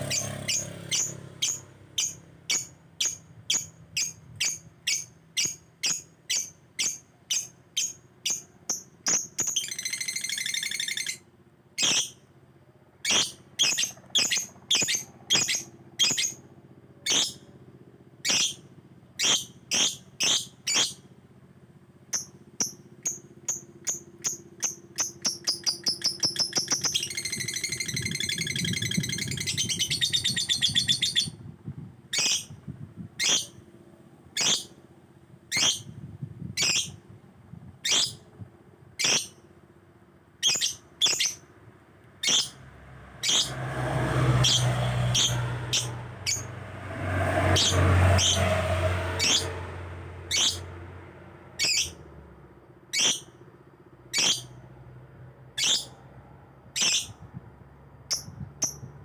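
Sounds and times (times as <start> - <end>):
lovebird chirping and trilling: 0.0 - 12.2, 13.0 - 16.4, 17.0 - 17.5, 18.2 - 21.0, 22.1 - 31.5, 32.1 - 32.6, 33.2 - 33.6, 34.3 - 34.8, 35.5 - 36.0, 36.6 - 37.0, 37.8 - 38.2, 39.0 - 39.5, 40.4 - 41.5, 42.2 - 42.6, 43.2 - 43.7, 44.3 - 46.6, 47.4 - 48.5, 49.2 - 49.5, 50.3 - 50.7, 51.6 - 52.0, 52.9 - 53.4, 54.1 - 54.6, 55.6 - 56.0, 56.7 - 57.4, 58.1 - 59.0.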